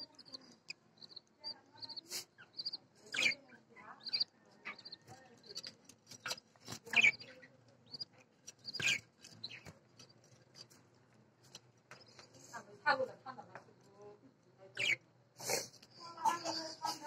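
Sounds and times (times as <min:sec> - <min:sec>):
harsh bird calls: 0:00.0 - 0:09.7
budgerigars chirping: 0:00.0 - 0:10.7, 0:14.7 - 0:15.0.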